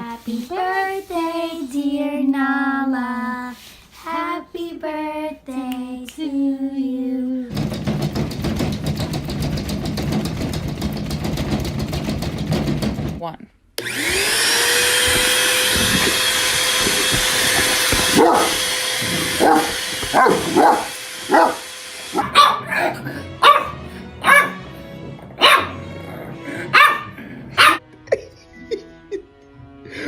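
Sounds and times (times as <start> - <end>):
appliance electric motor running: 13.8 - 24.2
dog barking: 18.0 - 24.7, 25.4 - 25.9, 26.7 - 27.8.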